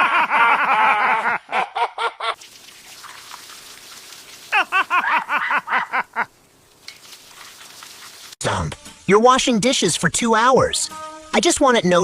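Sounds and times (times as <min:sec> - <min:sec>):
person laughing: 0:00.0 - 0:02.4, 0:04.5 - 0:06.3.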